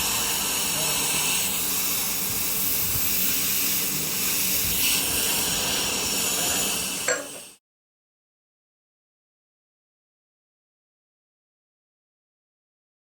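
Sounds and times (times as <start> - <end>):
welding arc crackling hiss: 0.0 - 7.6.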